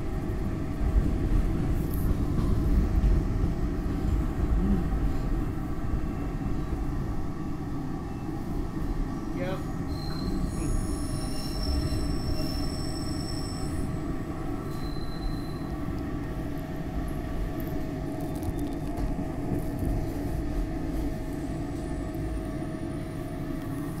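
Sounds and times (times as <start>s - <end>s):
train wheels rumbling on rail: 0.0s - 24.0s
high-pitched wheel squeals: 9.9s - 14.0s, 14.6s - 15.8s.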